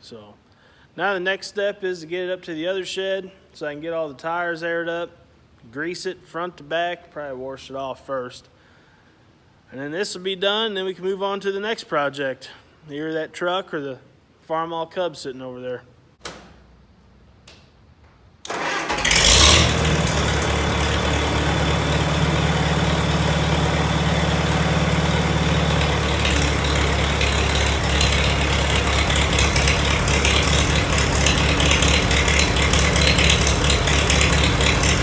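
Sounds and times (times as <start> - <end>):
tractor engine starting and running: 18.4 - 35.0.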